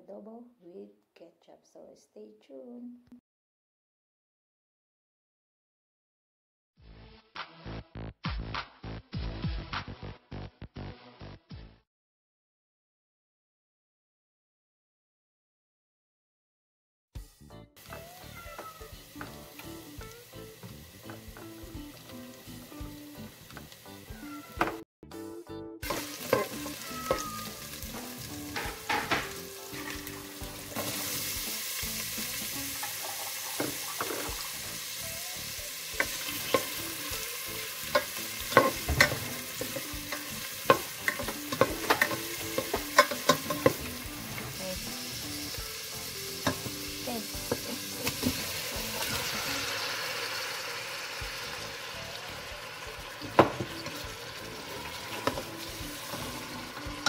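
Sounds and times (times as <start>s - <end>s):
garlic and onion sizzling in oil: 17.8s - 24.5s, 25.8s - 57.0s
utensil scraping metal pot: 25.9s - 27.2s, 37.9s - 44.6s.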